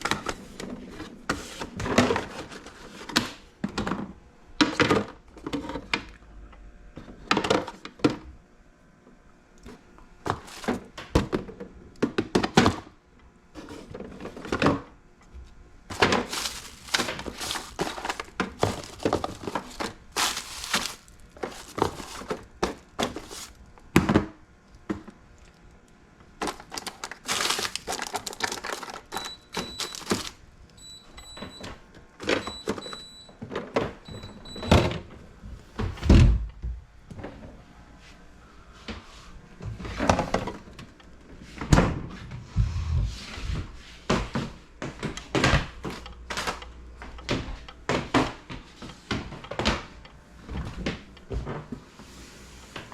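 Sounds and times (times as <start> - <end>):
things knocking as set down: 15.9 - 24.3
rubbing and scrubbing: 16.2 - 23.6.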